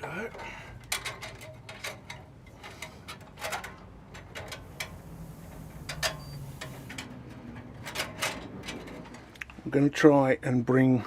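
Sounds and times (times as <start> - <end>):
light clicks and knocks on metal: 0.1 - 5.0.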